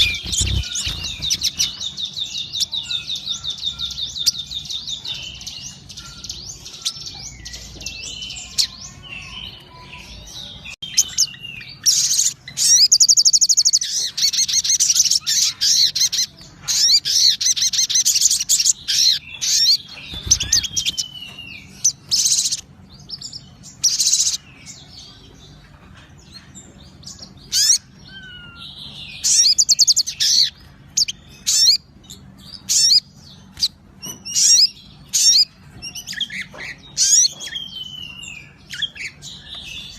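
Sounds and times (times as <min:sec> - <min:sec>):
bird chattering trills: 0:00.0 - 0:04.4.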